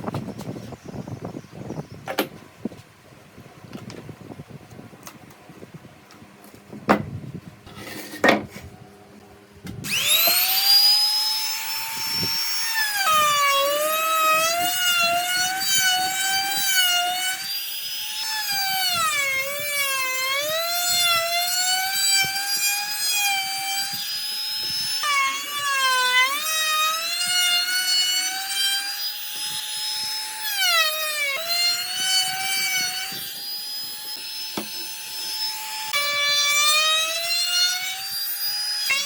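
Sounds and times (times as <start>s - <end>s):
power tool whining into wood: 9.8s - 39.0s.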